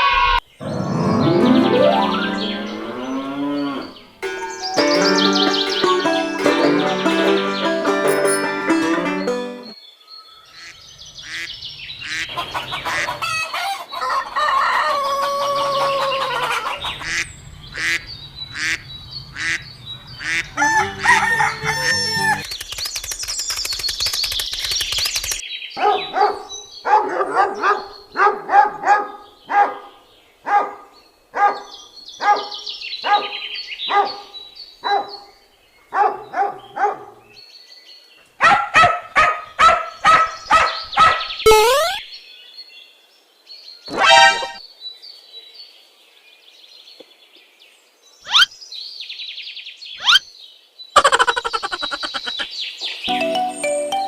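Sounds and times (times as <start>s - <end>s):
fowl crowing: 13.0s - 16.7s, 20.3s - 22.4s.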